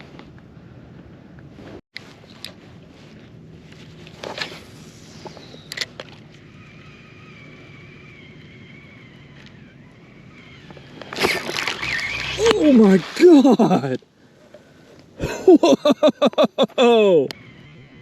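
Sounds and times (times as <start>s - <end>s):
thin whine: 2.0s - 15.1s
distant motorboat engine droning: 4.7s - 14.9s.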